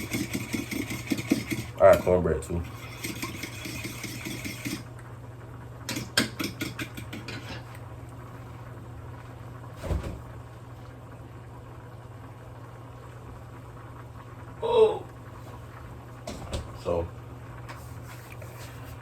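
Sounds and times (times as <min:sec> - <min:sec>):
steady low hum: 0:00.0 - 0:19.0
thump: 0:09.8 - 0:10.3.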